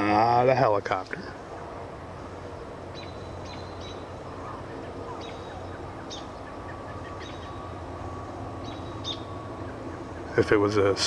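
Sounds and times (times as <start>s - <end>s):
faint thin whine: 0.0s - 11.0s
low-flying propeller aircraft drone: 0.0s - 11.0s
high bird chirps: 2.9s - 10.4s.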